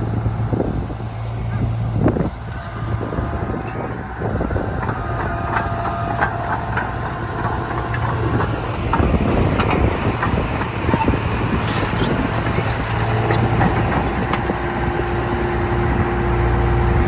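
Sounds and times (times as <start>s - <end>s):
bulldozer diesel engine: 0.0s - 17.0s
metallic clanks and squeaks of tracks: 2.5s - 14.6s
brief squeal: 11.0s - 13.8s.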